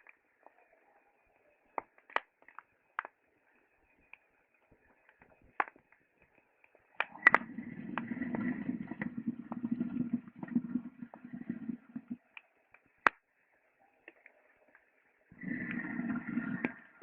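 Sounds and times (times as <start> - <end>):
wood fire crackling: 1.7 - 7.5.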